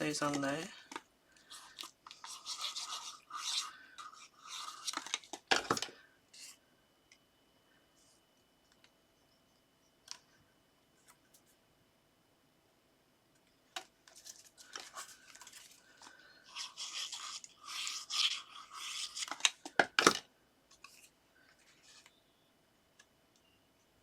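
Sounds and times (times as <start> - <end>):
paper rustling and rubbing: 1.4 - 5.4, 14.1 - 19.6.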